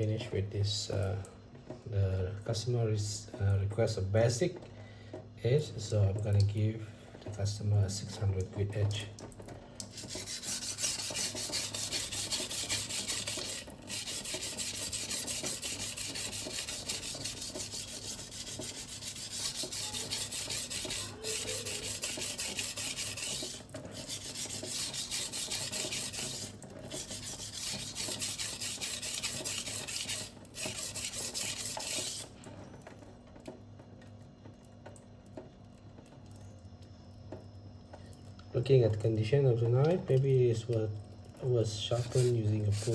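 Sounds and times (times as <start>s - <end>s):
knife scraping on whetstone: 10.0s - 32.3s, 41.9s - 42.9s.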